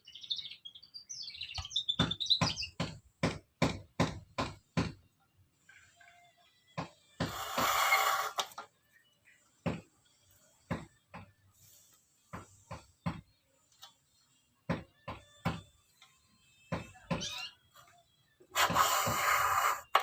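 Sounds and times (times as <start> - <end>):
sharp knocks and taps: 1.6 - 5.0, 12.3 - 13.9.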